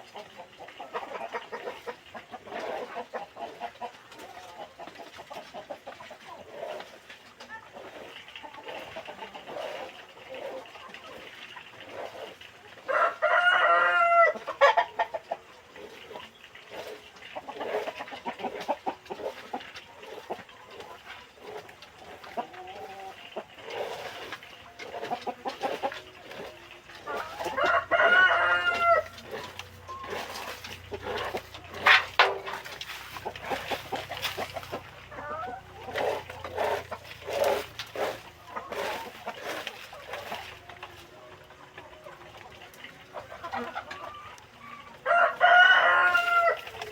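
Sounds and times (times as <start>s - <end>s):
chickens clucking: 0.0s - 46.9s
rooster crowing: 12.9s - 14.4s, 27.1s - 30.4s, 45.0s - 46.9s.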